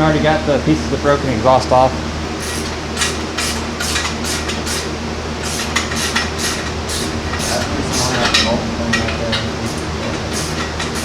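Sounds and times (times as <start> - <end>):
low hum of shop machinery: 0.0 - 11.0
short scraping strokes: 2.4 - 8.3.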